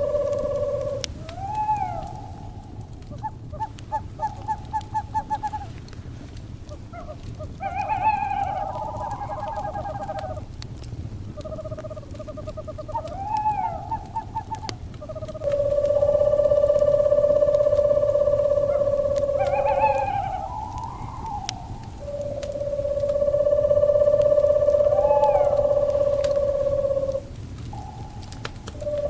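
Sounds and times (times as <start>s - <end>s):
owls hooting and trilling: 0.0s - 5.8s, 6.7s - 10.6s, 11.3s - 29.0s
fire crackling and popping: 0.0s - 29.0s
low rumble: 15.3s - 29.0s.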